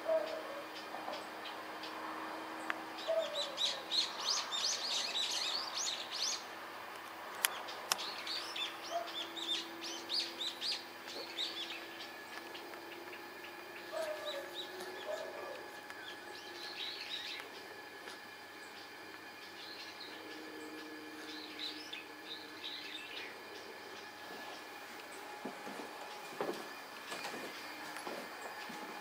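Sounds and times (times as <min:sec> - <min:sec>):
small birds chirping: 0:00.1 - 0:06.5, 0:07.4 - 0:25.4
faint low hum: 0:07.4 - 0:29.0.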